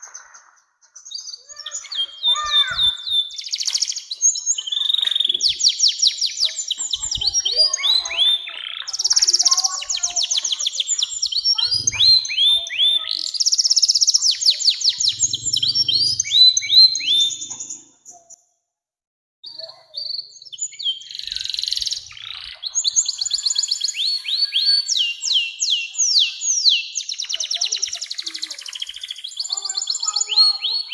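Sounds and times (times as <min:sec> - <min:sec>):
canary singing trills: 0:00.0 - 0:18.4, 0:19.4 - 0:30.9.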